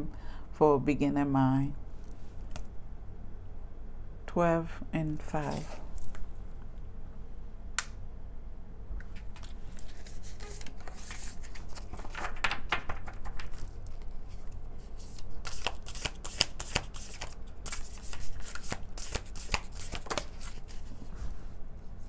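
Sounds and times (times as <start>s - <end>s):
faint low hum: 0.0s - 15.5s
cards being shuffled: 9.0s - 21.0s.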